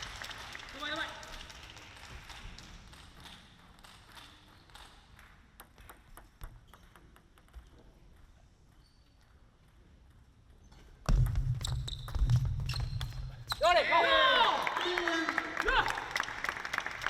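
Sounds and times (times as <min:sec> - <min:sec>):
table tennis ball bouncing: 0:02.8 - 0:10.2, 0:11.0 - 0:13.6.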